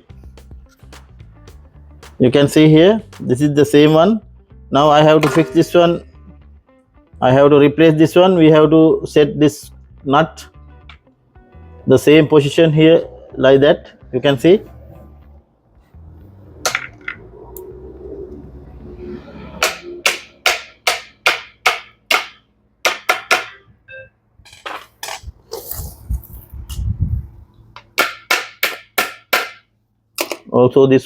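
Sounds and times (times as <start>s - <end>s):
low rumble: 11.5s - 20.1s, 26.0s - 27.7s.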